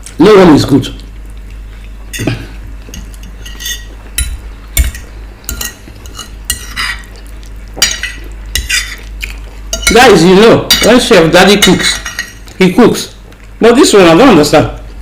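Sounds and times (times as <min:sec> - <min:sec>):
spoon scraping on a plate: 0:02.9 - 0:07.1, 0:07.8 - 0:09.1, 0:11.6 - 0:12.4.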